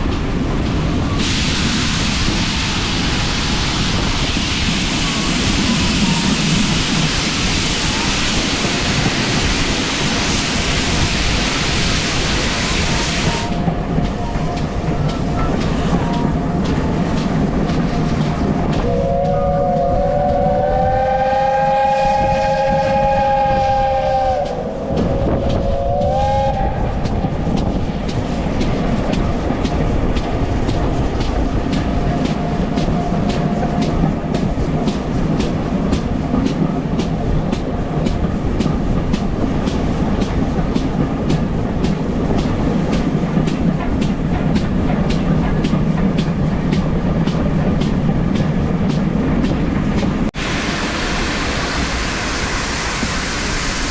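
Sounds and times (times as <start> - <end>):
train running on rails: 0.0 - 53.9
loud hiss: 0.1 - 17.6, 50.4 - 53.9
train whistle blasts: 12.4 - 14.7, 18.8 - 27.0.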